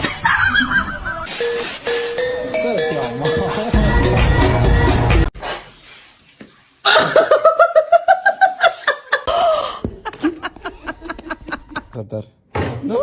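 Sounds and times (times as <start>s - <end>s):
person laughing: 6.9s - 12.0s.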